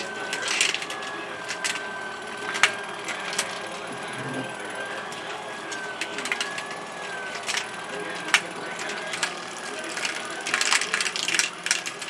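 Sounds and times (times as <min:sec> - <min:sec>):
motor high whine: 0:00.0 - 0:10.5
marbles clicking: 0:00.0 - 0:12.0
wooden gears ratcheting: 0:00.0 - 0:12.0.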